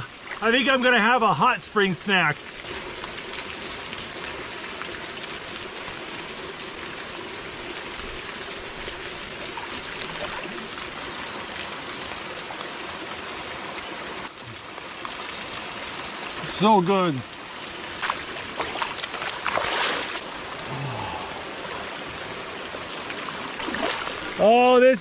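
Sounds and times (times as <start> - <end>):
water splashing into pool: 2.4 - 16.4, 17.9 - 20.8, 21.7 - 24.5.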